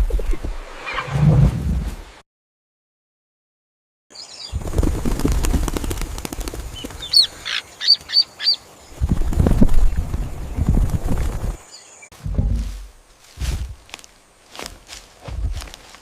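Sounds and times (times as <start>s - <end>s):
birds flapping wings: 4.5s - 8.2s, 8.9s - 11.7s.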